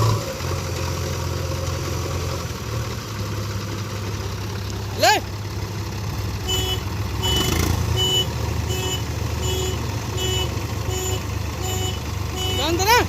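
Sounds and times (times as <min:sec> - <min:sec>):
diesel engine rumble: 0:00.0 - 0:13.0
reversing alarm beeping: 0:06.5 - 0:13.0.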